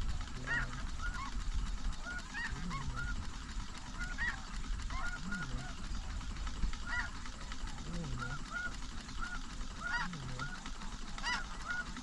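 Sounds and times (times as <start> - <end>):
lower goose call: 0.4 - 1.4, 2.0 - 6.0, 6.8 - 7.2, 7.8 - 12.0
snow goose honks: 2.0 - 5.8, 6.8 - 7.2, 8.1 - 12.0.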